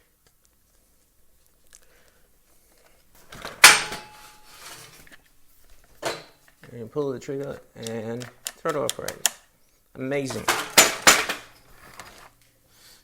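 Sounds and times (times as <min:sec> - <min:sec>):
faint handling noises: 0:00.1 - 0:12.6
hard parts clacking together: 0:03.3 - 0:04.9, 0:07.4 - 0:09.4, 0:10.3 - 0:12.3.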